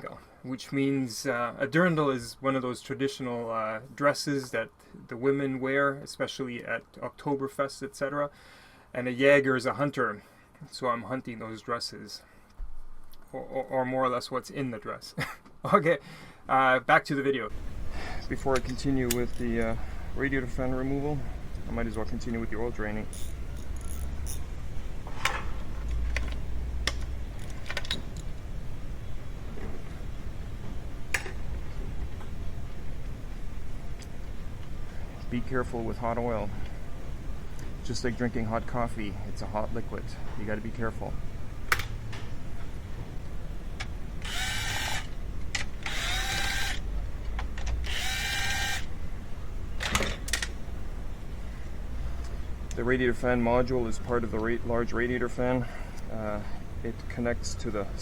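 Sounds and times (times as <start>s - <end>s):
steady low hum: 17.4s - 58.0s
sharp metal clicks: 18.5s - 19.7s
power driver spinning: 23.1s - 24.5s, 44.2s - 46.9s, 47.8s - 48.9s.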